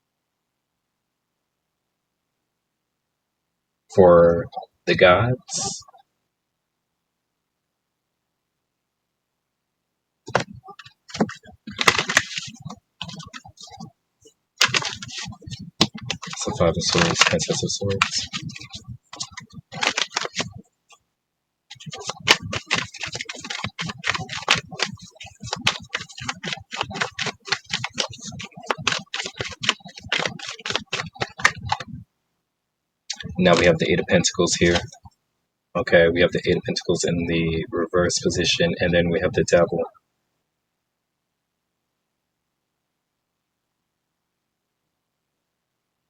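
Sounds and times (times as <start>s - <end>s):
cards shuffling: 10.3s - 13.9s, 14.6s - 20.6s, 21.7s - 32.0s, 33.1s - 35.1s.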